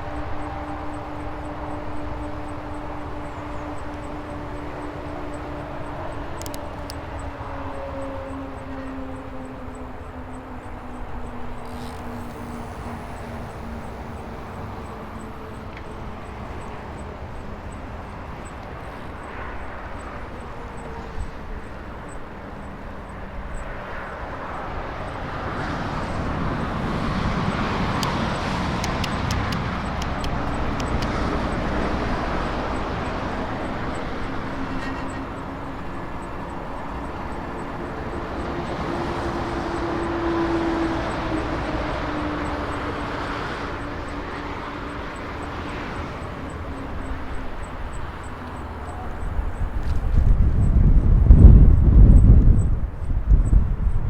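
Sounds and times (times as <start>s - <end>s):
rushing wind: 0.0s - 54.0s
sharp clicks: 6.3s - 7.2s, 27.9s - 31.6s
electric motor whine: 9.9s - 18.0s.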